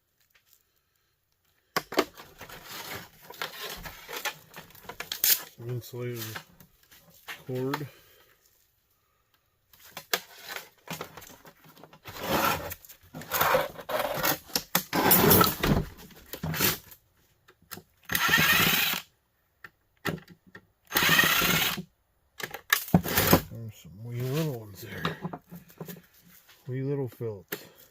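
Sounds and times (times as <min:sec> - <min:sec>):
power drill running: 0:18.1 - 0:19.0, 0:20.9 - 0:21.8.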